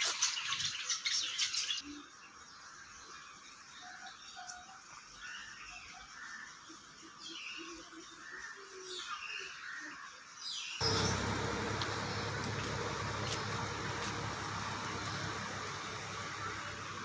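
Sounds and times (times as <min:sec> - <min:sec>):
birds calling and chirping: 0:10.5 - 0:17.0
loud steady rushing noise: 0:10.8 - 0:17.0.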